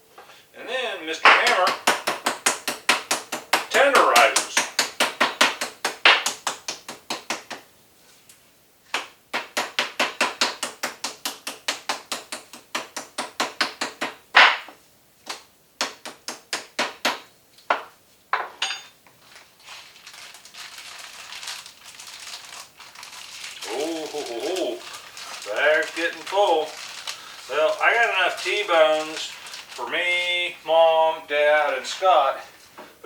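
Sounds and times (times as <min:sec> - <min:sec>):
mallet pounding steak: 0:01.3 - 0:07.6.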